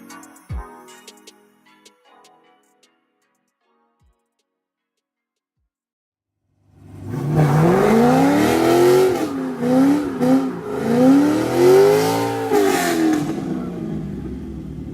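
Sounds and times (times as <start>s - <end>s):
car engine revving: 6.7s - 14.9s.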